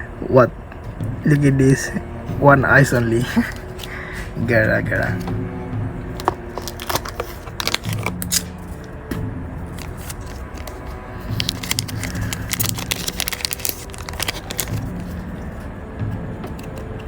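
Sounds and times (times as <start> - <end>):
cards being handled: 3.4 - 4.3, 4.9 - 5.4, 6.1 - 9.0, 9.7 - 15.4
foil wrapper crinkling: 6.2 - 8.5, 9.7 - 15.4.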